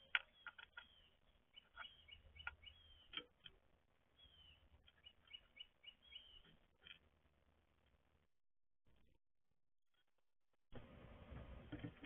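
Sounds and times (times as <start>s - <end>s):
songbirds calling: 0.0s - 7.2s.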